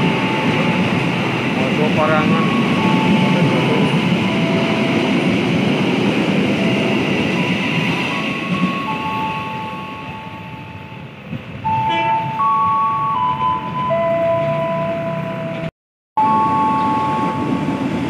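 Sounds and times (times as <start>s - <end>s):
train wheels rumbling on rails: 0.0s - 15.7s
clear loud tone: 11.7s - 15.6s, 16.2s - 17.8s.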